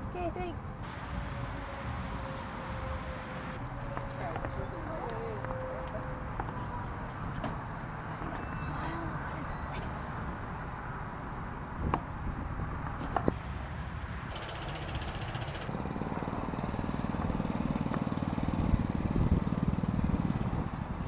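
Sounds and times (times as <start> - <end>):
small engine idling: 0.8 - 3.6, 13.4 - 15.7
brief high hiss: 13.4 - 15.7
sharp clicks: 14.3 - 15.7.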